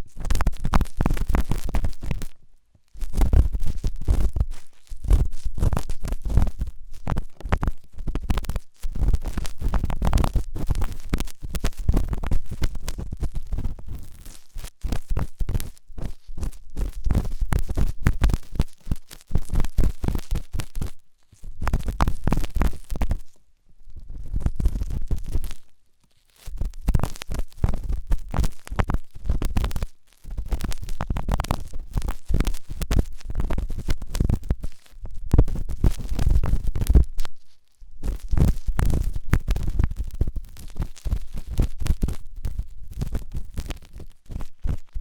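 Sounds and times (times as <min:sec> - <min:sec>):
ear pick scratching: 0:26.2 - 0:45.0.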